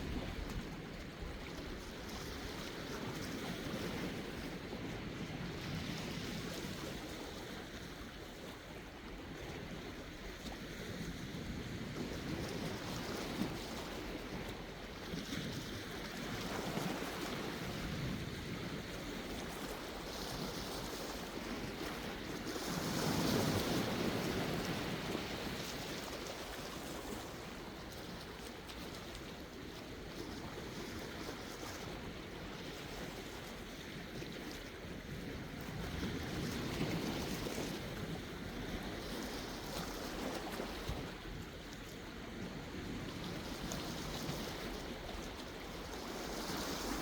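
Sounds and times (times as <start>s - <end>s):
sea waves washing in: 43.0s - 47.0s.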